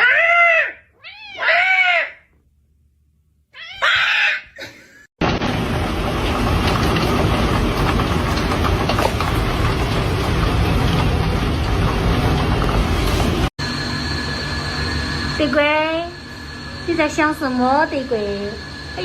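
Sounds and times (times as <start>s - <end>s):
cat meowing: 0.0s - 2.2s, 3.5s - 4.5s.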